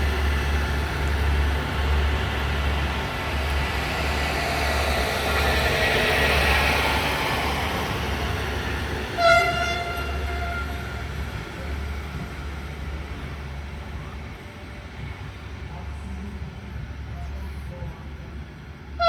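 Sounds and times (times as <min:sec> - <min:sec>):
diesel train running: 0:00.0 - 0:19.0
train horn blast: 0:09.2 - 0:11.2.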